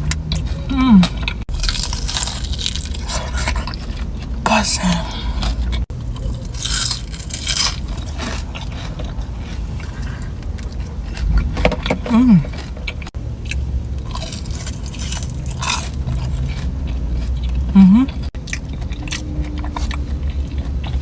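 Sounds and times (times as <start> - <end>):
person biting and chewing food: 0.0 - 21.0
person humming: 0.6 - 1.2, 12.0 - 12.5, 17.7 - 18.2.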